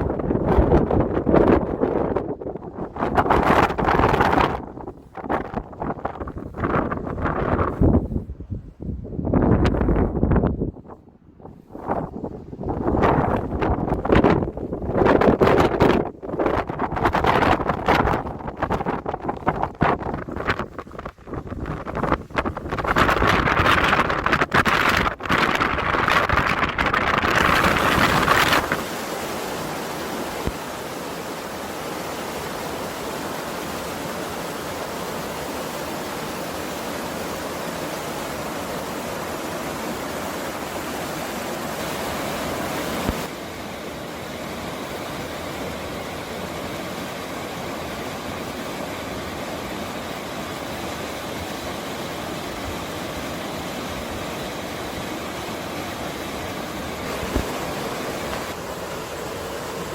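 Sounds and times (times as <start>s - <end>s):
mountain stream rushing: 12.7s - 59.9s.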